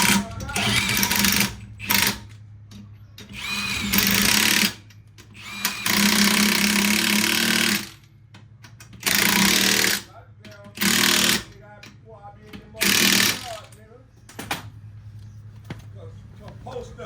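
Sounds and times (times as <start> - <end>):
pneumatic impact wrench: 0.0 - 2.3, 3.2 - 8.0, 8.9 - 10.1, 10.8 - 11.5, 12.8 - 13.6.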